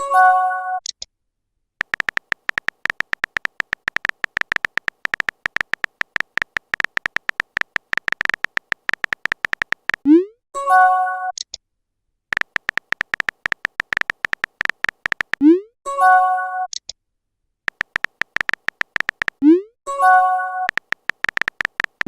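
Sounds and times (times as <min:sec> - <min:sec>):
typing clicks sound effect: 0:01.8 - 0:10.1, 0:12.4 - 0:15.6, 0:17.7 - 0:22.0.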